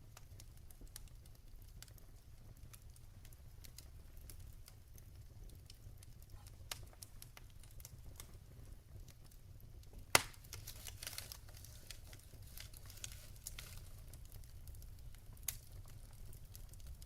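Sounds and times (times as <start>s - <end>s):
logs crackling in fireplace: 0.0s - 17.0s
loud pop from fire: 10.0s - 11.4s.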